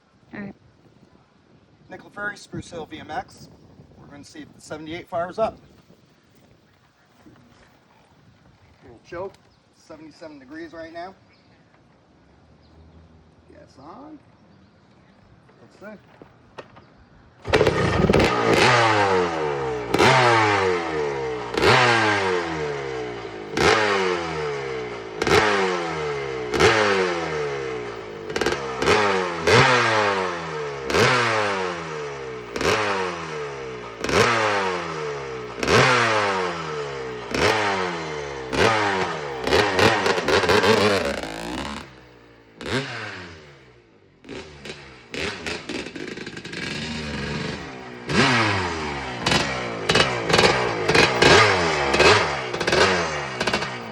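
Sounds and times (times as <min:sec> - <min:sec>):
two-stroke engine revving: 0:17.4 - 0:53.9.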